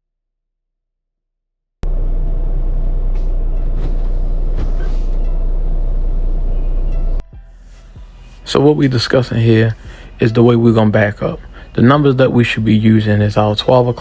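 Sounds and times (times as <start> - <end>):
diesel truck engine running: 1.8 - 7.2.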